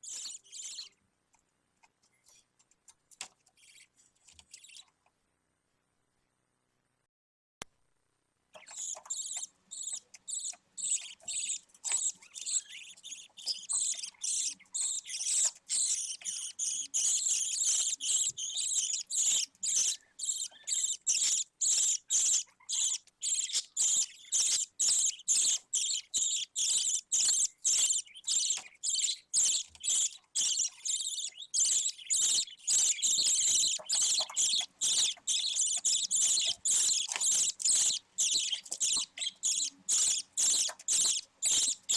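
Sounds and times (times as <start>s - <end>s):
budgerigar chicks cheeping: 0.0s - 0.9s, 8.6s - 41.9s.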